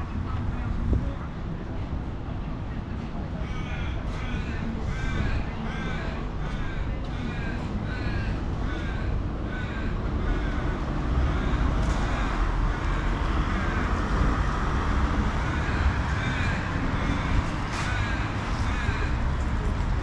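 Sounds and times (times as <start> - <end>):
wind and tyre rumble: 0.0 - 20.0
crow cawing: 3.4 - 19.4.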